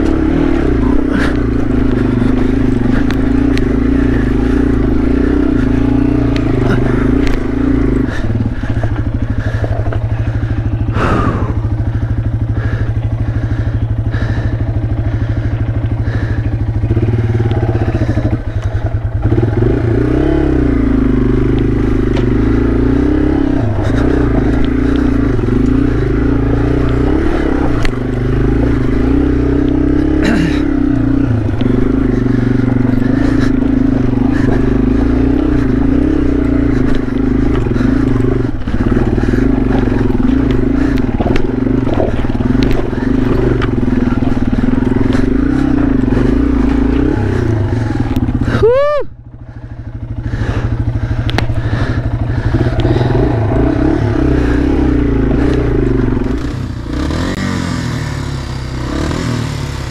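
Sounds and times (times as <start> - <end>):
motorcycle engine running: 0.0 - 59.9
knocks and rattles: 31.5 - 47.2.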